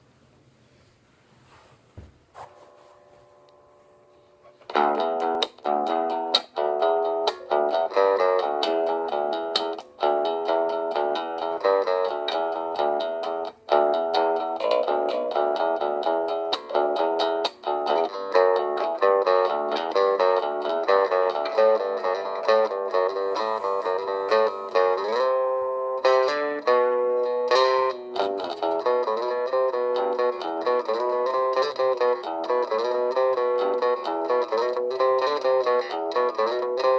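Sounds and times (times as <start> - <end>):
plucked string instrument: 2.4 - 36.9.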